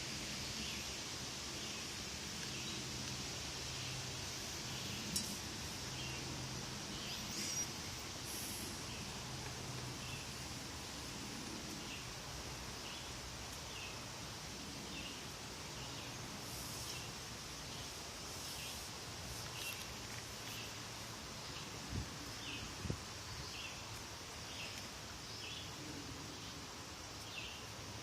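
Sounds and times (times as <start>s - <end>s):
steady high hiss: 0.0s - 28.0s
faint bird chirps: 6.9s - 8.7s.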